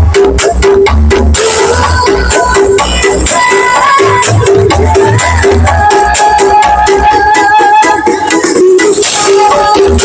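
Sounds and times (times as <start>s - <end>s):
loud electronic dance music: 0.0s - 10.0s.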